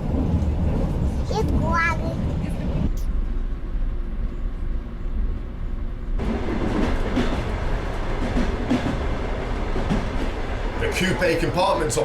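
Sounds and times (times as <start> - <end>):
train rumbling and rattling: 0.0 - 12.0
train knocks: 6.2 - 12.0.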